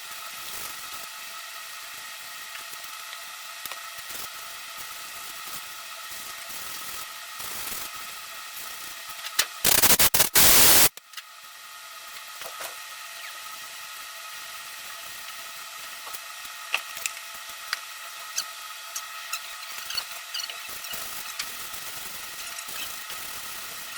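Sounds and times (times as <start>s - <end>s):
steady background hum: 0.0s - 23.9s
loud burst of hiss: 9.6s - 10.9s.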